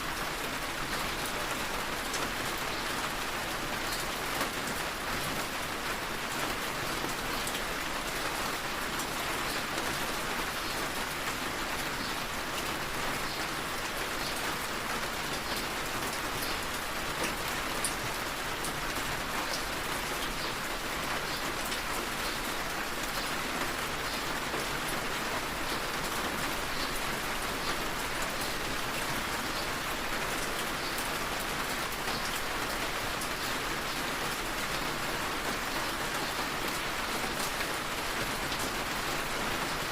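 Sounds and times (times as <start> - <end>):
rain on a hard surface: 0.0 - 39.9.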